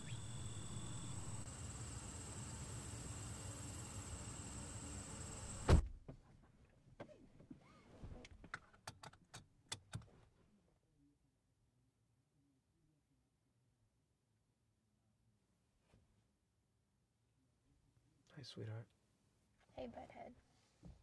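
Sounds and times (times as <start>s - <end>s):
crickets trilling: 0.0s - 5.7s
car door slamming: 5.5s - 6.0s.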